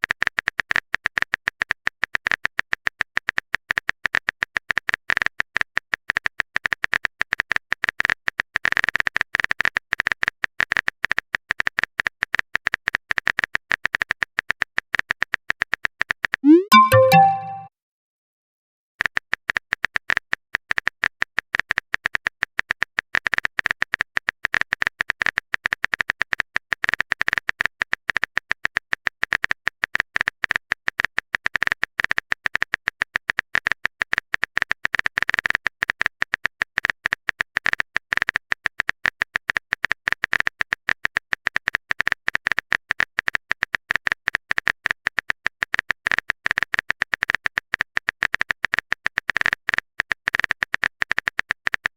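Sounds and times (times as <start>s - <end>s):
keyboard typing clicks: 16.4s - 17.6s.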